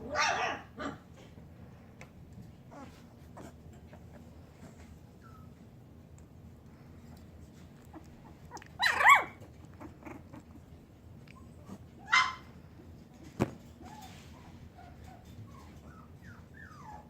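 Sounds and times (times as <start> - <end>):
puppies yelping: 7.9 - 10.8, 11.4 - 12.6.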